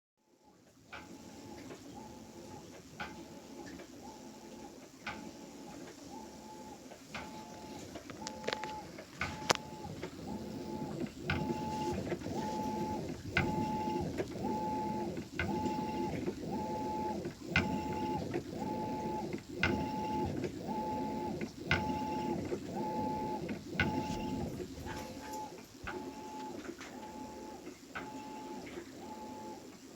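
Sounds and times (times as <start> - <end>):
washing machine churning: 8.8 - 28.1.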